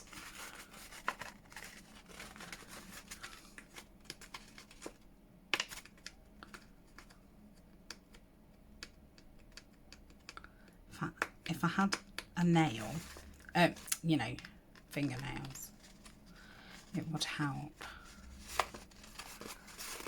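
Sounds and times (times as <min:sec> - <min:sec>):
paper and card handling: 0:00.0 - 0:07.2, 0:12.6 - 0:20.0.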